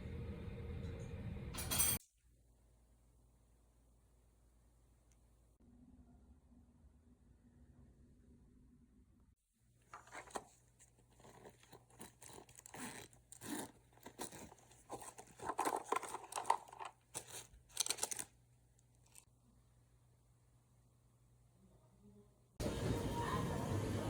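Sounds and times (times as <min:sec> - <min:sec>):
material rustling and crinkling: 0:09.8 - 0:19.3.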